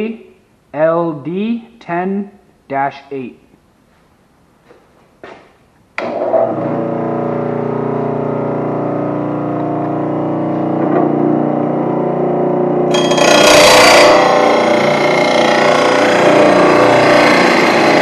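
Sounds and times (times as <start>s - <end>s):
electric motor humming: 6.0s - 18.0s
grinding wheel on metal blade: 12.9s - 18.0s.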